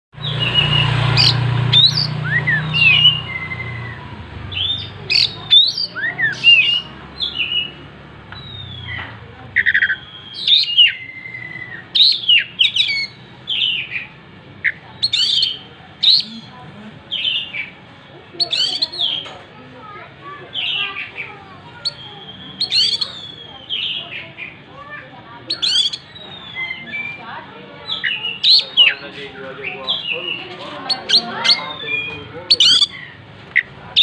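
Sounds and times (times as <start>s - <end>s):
bird singing whistled phrases: 0.2s - 7.8s, 8.4s - 9.0s, 9.6s - 14.0s, 14.6s - 16.5s, 21.8s - 24.2s, 25.5s - 29.2s, 29.8s - 34.0s.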